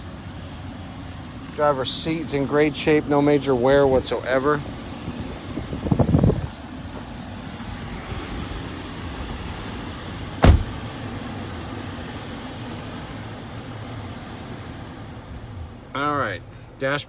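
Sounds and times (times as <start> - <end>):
sharp thump: 10.4 - 10.9.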